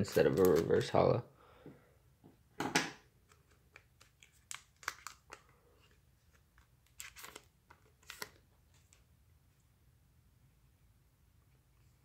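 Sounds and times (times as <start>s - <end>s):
foil wrapper crinkling and tearing: 4.0s - 5.4s, 6.8s - 8.4s.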